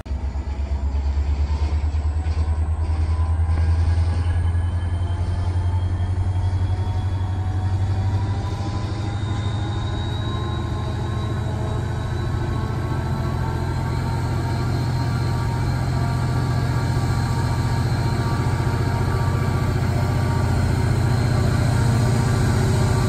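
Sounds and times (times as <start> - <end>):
freight train rumbling: 0.0 - 23.0
high wheel squeal: 0.4 - 23.0.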